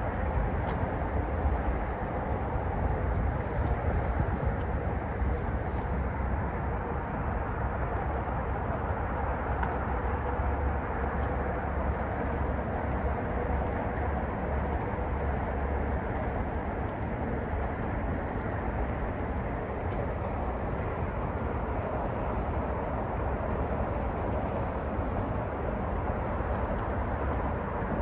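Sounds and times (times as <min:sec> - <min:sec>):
car engine and road rumble: 0:00.0 - 0:14.4.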